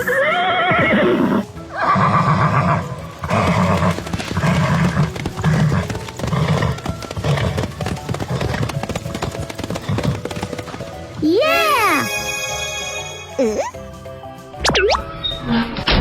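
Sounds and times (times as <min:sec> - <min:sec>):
horse neighing: 0:00.0 - 0:08.6
hooves clip-clopping: 0:00.0 - 0:11.6.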